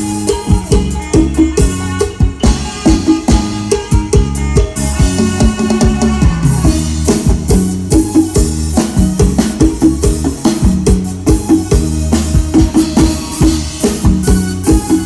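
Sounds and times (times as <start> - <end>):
band music through sound system: 0.0 - 15.0
drum kit beating fast rhythm: 0.0 - 15.0.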